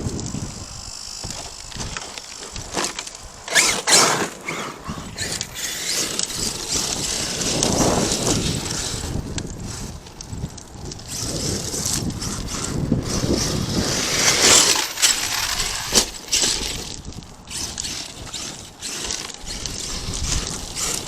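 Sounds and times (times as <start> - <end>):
gravel crunching under tyres: 0.0 - 21.0
rocks clattering: 1.2 - 4.7.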